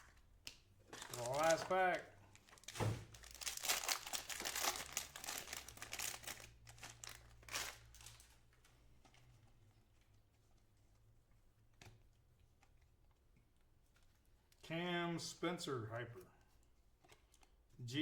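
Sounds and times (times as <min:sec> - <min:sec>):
faint handling noise: 0:00.8 - 0:03.7
foil wrapper crinkling: 0:00.9 - 0:08.7.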